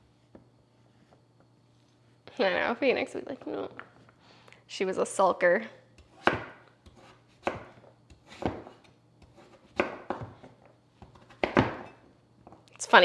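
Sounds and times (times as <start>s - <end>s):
knife chopping on cutting board: 6.0s - 12.0s.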